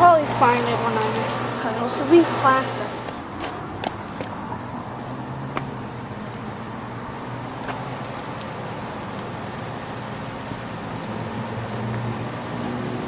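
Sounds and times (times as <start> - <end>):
compressor hum: 0.0 - 12.3
fan rushing: 0.0 - 13.0.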